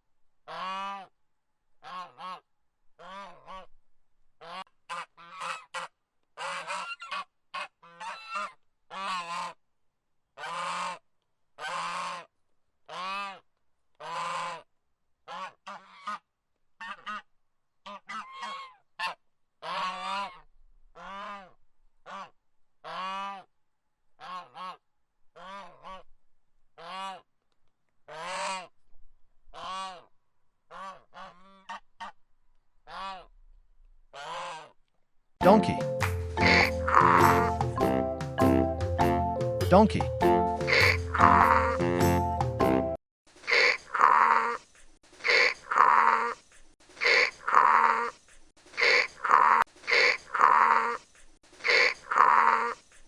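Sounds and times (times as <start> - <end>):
geese honking: 35.4 - 39.6, 40.2 - 43.8.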